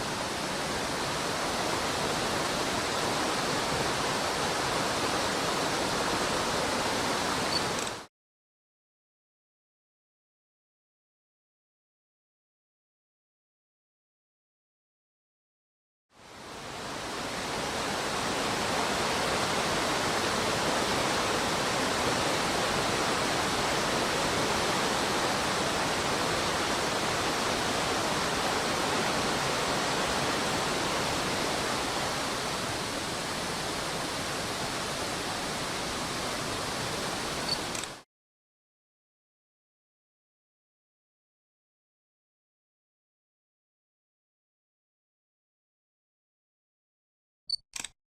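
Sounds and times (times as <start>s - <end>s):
rushing stream water: 0.0s - 8.1s, 16.2s - 38.0s.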